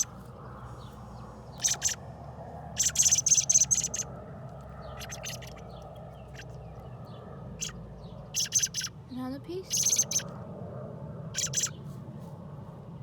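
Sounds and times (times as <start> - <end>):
fledgling bird raspy chirps: 0.0 - 2.1, 2.7 - 4.1, 4.7 - 6.8, 7.6 - 9.0, 9.6 - 10.3, 11.4 - 11.8.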